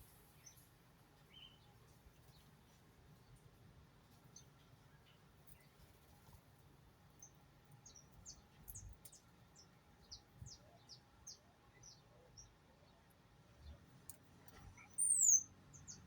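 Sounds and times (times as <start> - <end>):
small birds chirping: 7.2 - 13.0, 13.6 - 16.0.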